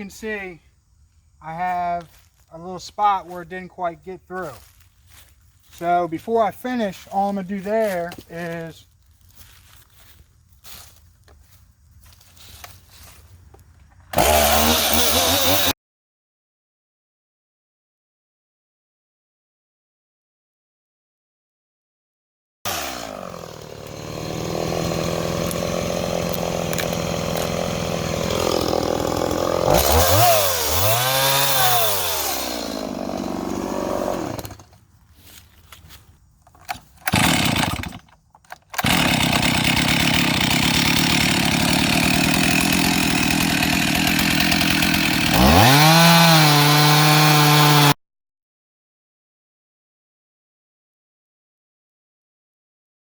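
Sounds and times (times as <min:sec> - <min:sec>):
chainsaw cutting log: 0:04.4 - 0:08.8, 0:14.1 - 0:15.8, 0:22.7 - 0:48.0.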